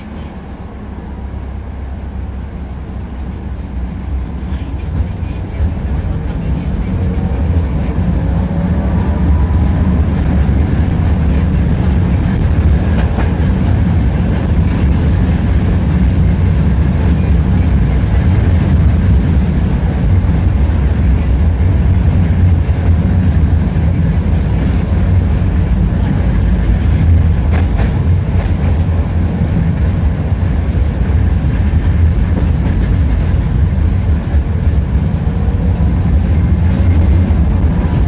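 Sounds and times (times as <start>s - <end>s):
tram wheels rumbling on rails: 0.0s - 38.0s.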